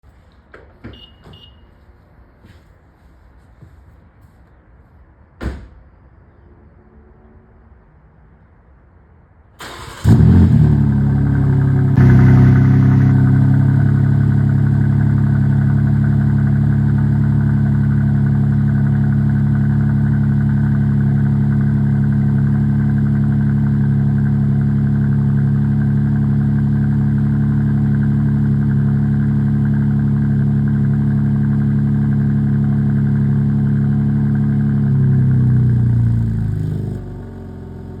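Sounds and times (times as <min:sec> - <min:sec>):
engine cranking: 0:09.6 - 0:10.4
car engine starting and idling: 0:09.6 - 0:38.0.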